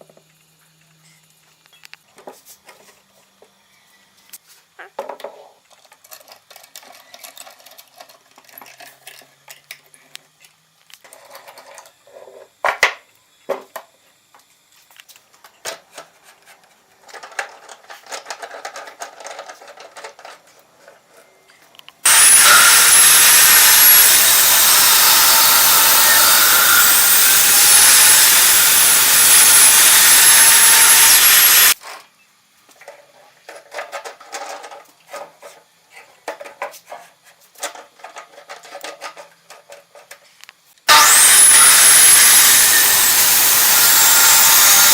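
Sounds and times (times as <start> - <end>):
wood and tools handled: 14.8 - 22.4, 30.9 - 41.3
power tool whining: 22.0 - 31.8, 40.9 - 44.9.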